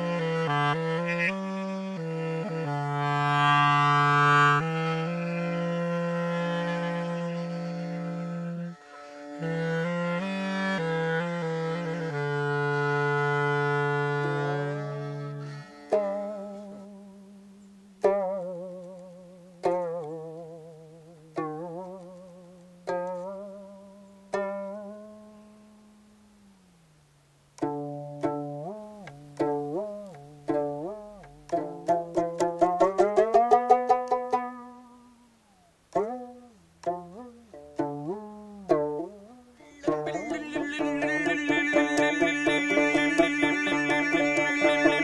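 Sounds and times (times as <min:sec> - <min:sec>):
plucked string instrument melody: 0:00.0 - 0:45.0
sustained ensemble of instruments: 0:35.9 - 0:45.0.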